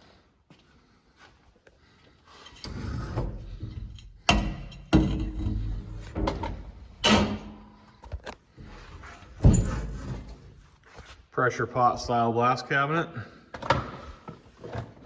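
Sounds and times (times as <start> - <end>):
metal knocks and clunks: 3.1 - 7.7, 9.3 - 10.4.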